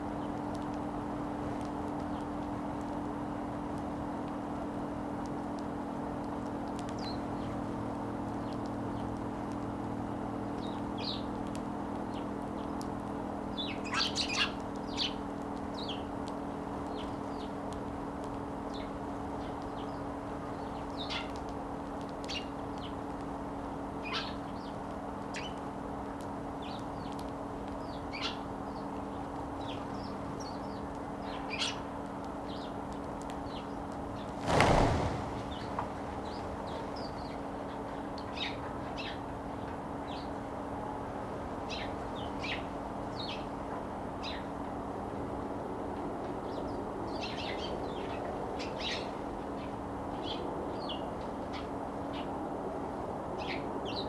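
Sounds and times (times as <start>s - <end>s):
loud rush of noise: 34.3s - 37.0s.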